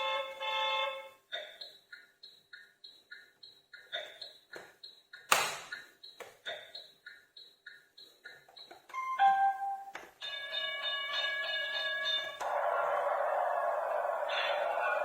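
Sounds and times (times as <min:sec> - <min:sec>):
repeating two-tone beeping: 0:01.4 - 0:12.4.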